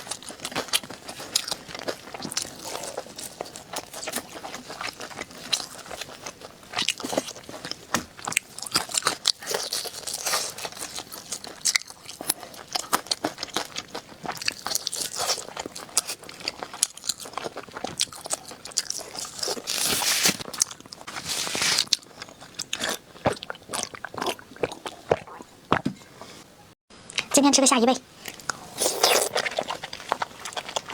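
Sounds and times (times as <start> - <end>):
crunching and chewing ribs: 0.0 - 25.8, 28.2 - 30.9.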